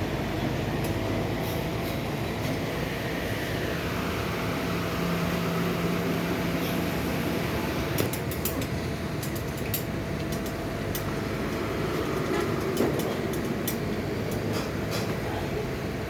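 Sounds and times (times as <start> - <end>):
hand tools clicking and tapping: 8.0 - 15.2.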